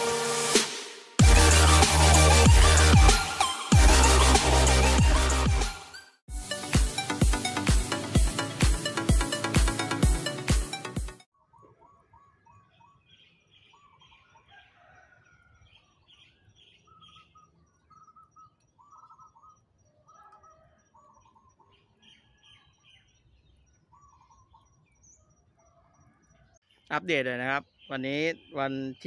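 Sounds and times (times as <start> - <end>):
small birds chirping: 11.4 - 14.8, 15.4 - 29.0.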